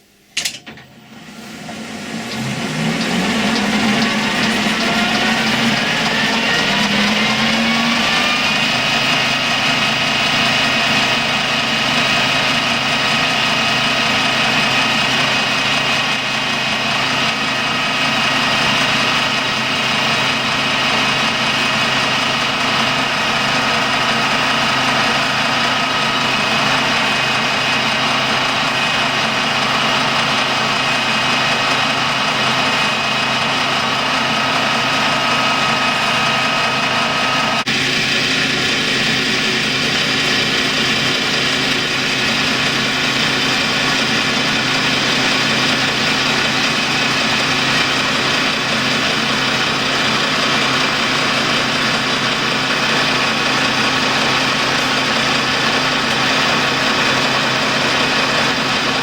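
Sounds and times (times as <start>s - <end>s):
lathe motor humming and whining: 0.9s - 59.0s.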